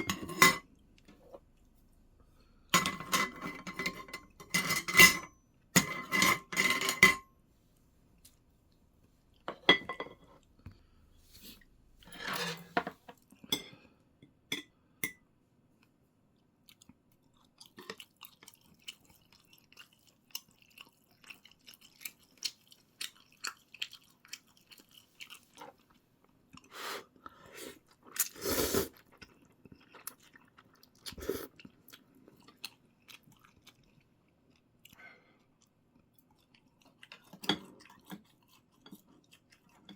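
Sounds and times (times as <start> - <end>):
tableware clinking: 0.0 - 0.6, 2.8 - 7.2, 9.5 - 10.2, 12.1 - 13.0
person chewing: 16.6 - 39.9.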